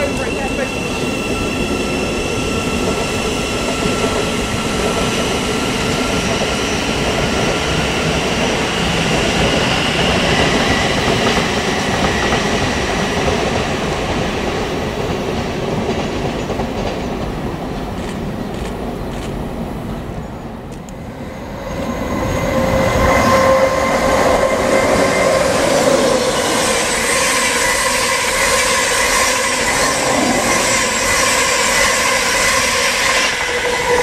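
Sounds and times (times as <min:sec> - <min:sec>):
train wheels clattering on rails: 0:00.0 - 0:19.4.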